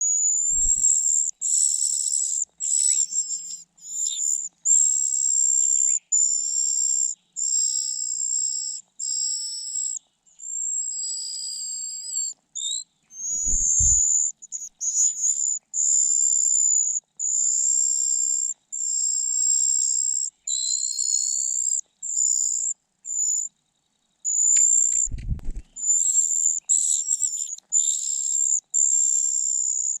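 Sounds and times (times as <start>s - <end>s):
nestlings begging calls: 0.0s - 23.5s, 24.2s - 30.0s
dull low thumps: 25.0s - 25.8s.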